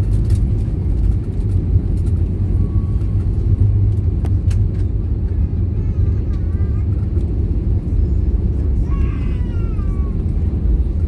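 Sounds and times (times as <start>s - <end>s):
airplane cabin rumble: 0.0s - 11.0s.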